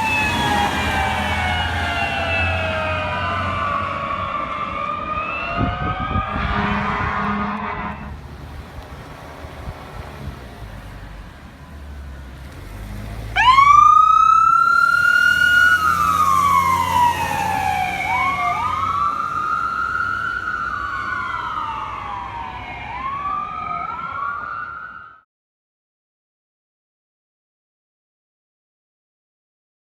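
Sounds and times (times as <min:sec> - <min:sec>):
siren wailing: 0:00.0 - 0:08.2, 0:13.4 - 0:25.2
low vehicle rumble: 0:00.0 - 0:24.8.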